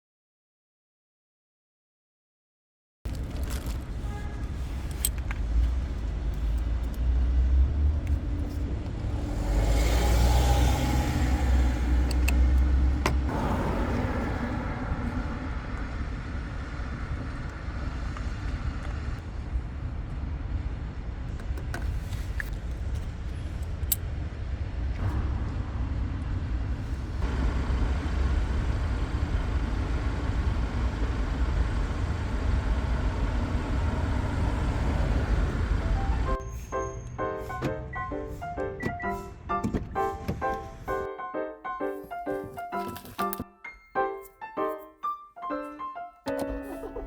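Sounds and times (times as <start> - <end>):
diesel engine rumbling: 3.1 - 43.4
music: 35.8 - 47.0.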